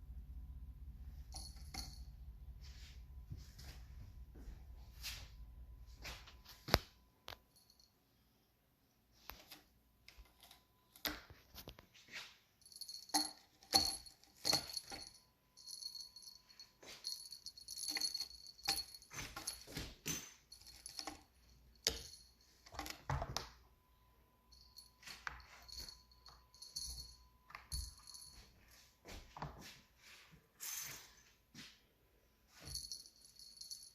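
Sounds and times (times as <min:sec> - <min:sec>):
jingle bell jingling: 0:01.3 - 0:02.1, 0:12.6 - 0:23.1, 0:24.5 - 0:28.8, 0:32.5 - 0:33.9.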